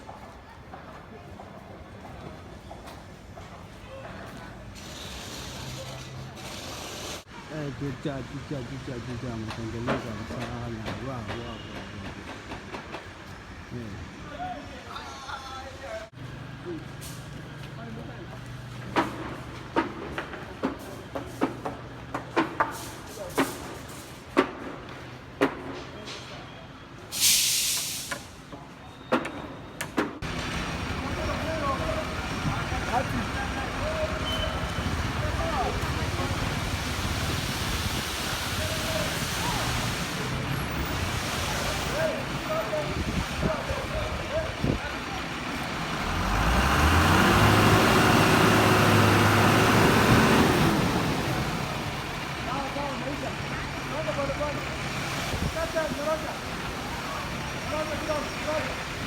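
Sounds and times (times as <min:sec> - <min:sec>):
sharp knocks and clanks: 0:09.4 - 0:13.2, 0:18.8 - 0:26.0
air release hiss: 0:27.1 - 0:28.4
heavy vehicle engine hum: 0:29.6 - 0:59.0.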